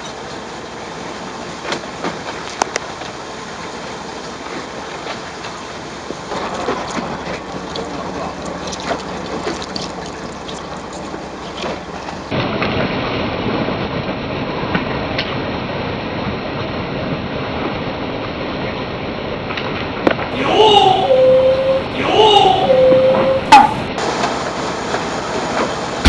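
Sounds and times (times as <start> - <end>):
wind: 0.0 - 26.0
water noise: 6.4 - 12.3, 20.3 - 24.2.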